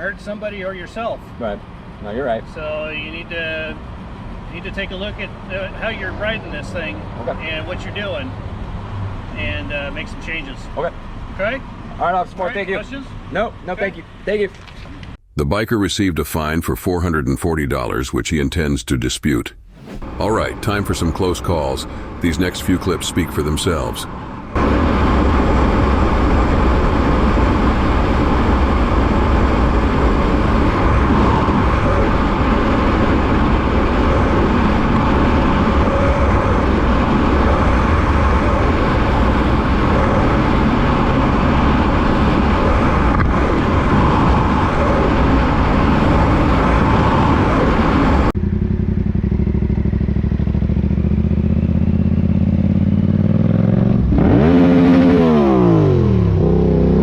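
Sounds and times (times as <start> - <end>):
motorcycle engine: 19.6 - 57.0
rushing wind noise: 24.1 - 48.3.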